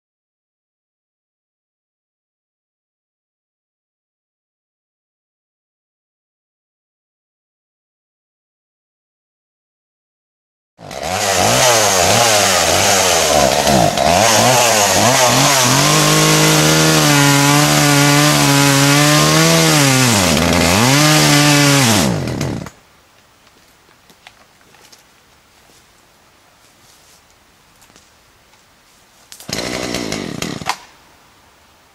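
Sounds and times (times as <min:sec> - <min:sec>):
chainsaw cutting wood: 0:10.8 - 0:22.8, 0:29.3 - 0:31.0.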